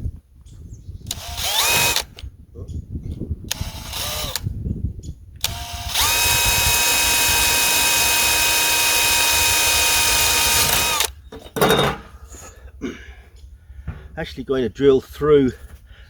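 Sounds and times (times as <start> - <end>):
electric drill running: 1.1 - 2.1, 3.5 - 4.5, 5.4 - 11.1.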